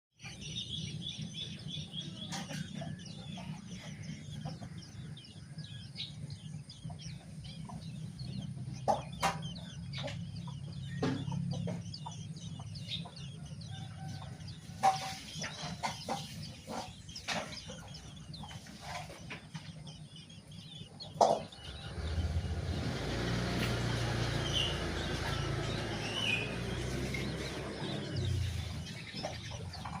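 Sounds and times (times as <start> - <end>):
young birds chirping: 0.2 - 30.0.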